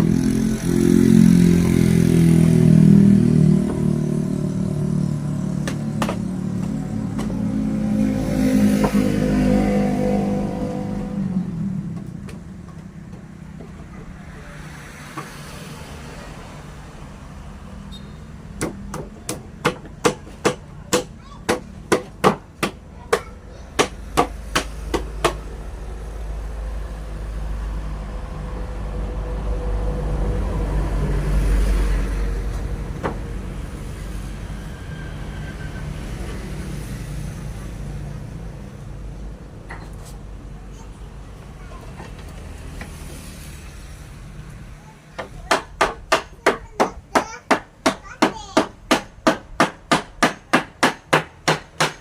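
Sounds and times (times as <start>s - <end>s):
hammer blows on wood: 45.2s - 52.0s.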